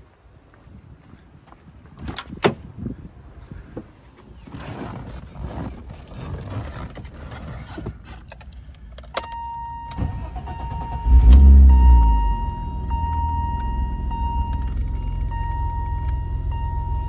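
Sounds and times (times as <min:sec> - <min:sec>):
steady warning beep: 0:09.2 - 0:17.0
car starter cranking: 0:09.9 - 0:12.3
car engine revving to fast idle: 0:10.2 - 0:12.4.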